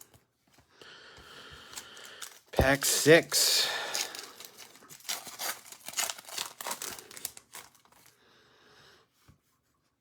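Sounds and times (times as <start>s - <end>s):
foil wrapper crinkling and tearing: 1.6s - 8.2s.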